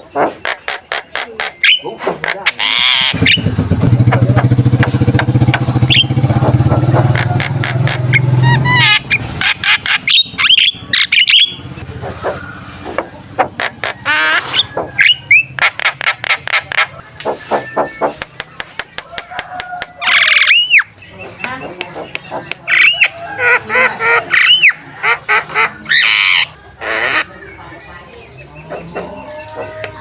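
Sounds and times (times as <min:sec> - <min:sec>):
bird rattling churr and whistles: 0:00.2 - 0:03.6, 0:05.1 - 0:20.9.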